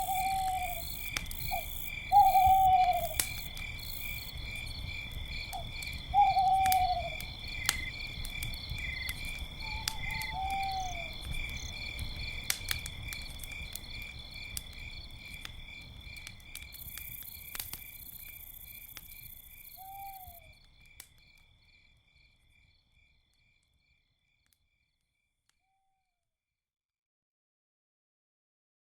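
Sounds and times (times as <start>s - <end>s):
owl hooting: 0.0s - 3.4s, 6.1s - 7.3s, 9.6s - 11.2s, 19.8s - 20.5s
crickets chirping: 0.0s - 24.4s
campfire crackling: 0.0s - 24.6s.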